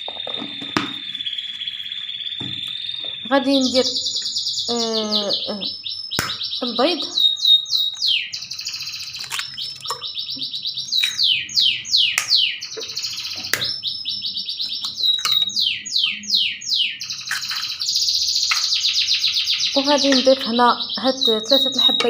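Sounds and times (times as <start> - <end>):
songbird singing: 0.0 - 22.0
sharp knocks: 0.1 - 1.1.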